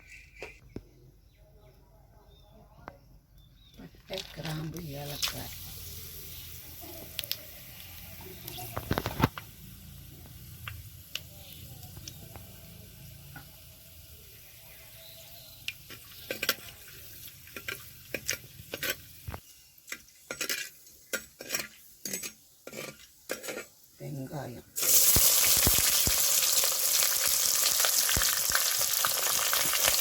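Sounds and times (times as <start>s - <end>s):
spices sizzling in oil: 4.4s - 30.0s
spatula knocking and scraping pan: 19.9s - 23.8s.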